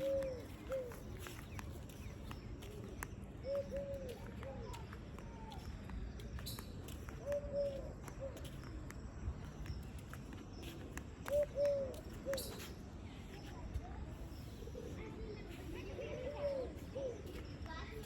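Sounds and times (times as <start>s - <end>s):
dove cooing: 0.0s - 1.0s, 3.4s - 4.8s, 7.2s - 8.4s, 11.3s - 12.5s, 16.0s - 17.3s
faint outdoor background: 0.0s - 18.0s.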